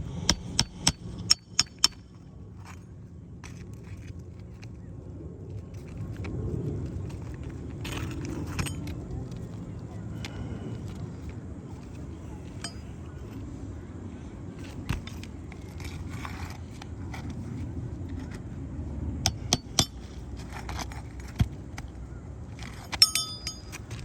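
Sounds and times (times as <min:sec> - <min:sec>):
steady low rumble: 0:00.0 - 0:24.0
ringing metal clinks: 0:12.6 - 0:13.0, 0:22.7 - 0:24.0
hand tools scraping roof shingles: 0:14.7 - 0:17.5, 0:19.3 - 0:21.9.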